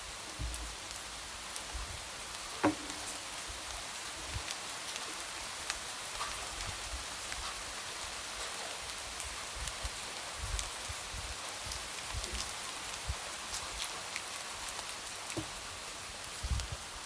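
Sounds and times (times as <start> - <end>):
light rain on a window: 0.0 - 17.0.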